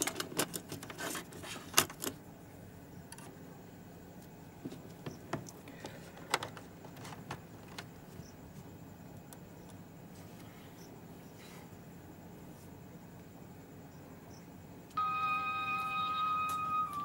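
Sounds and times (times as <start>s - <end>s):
projector handling clicks and rattles: 0.0s - 2.2s.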